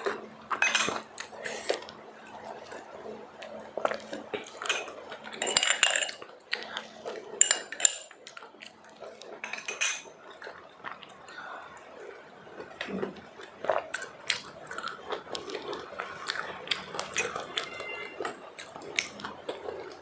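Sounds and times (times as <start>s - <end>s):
chewing: 0.0s - 20.0s
plate and utensils clinking: 0.5s - 1.0s, 4.6s - 6.2s, 9.4s - 10.1s.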